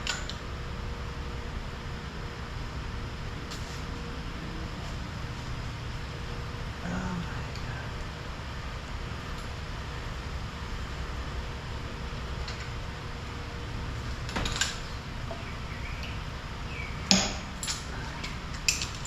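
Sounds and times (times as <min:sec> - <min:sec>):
low rumble: 0:00.0 - 0:19.0
sharp metallic knock: 0:17.1 - 0:17.6
metal tools clinking: 0:17.1 - 0:19.0.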